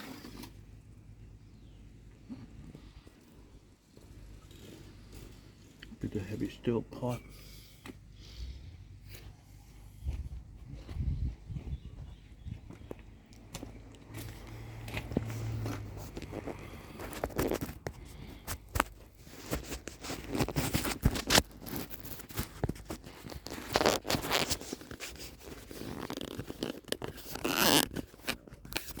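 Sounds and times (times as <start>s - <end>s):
scraping and rustling: 14.1s - 29.0s.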